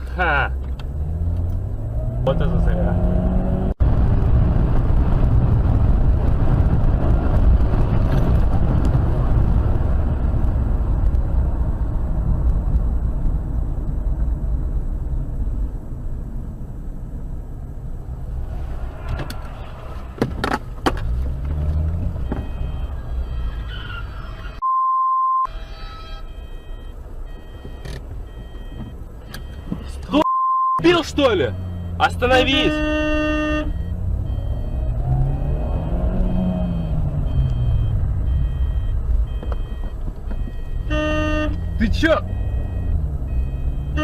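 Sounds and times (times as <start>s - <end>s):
car engine and road noise: 0.0s - 44.0s
electronic beep: 24.5s - 40.9s.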